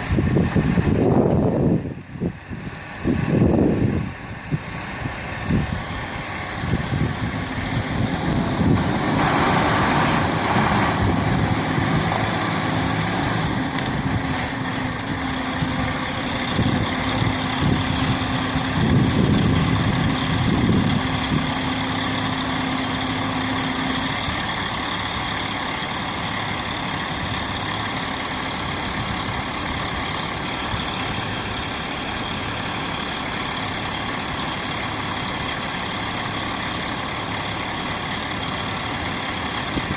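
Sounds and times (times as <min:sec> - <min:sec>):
diesel truck engine rumbling: 0:00.0 - 0:39.9
air brake hisses: 0:17.9 - 0:18.4, 0:23.8 - 0:24.5.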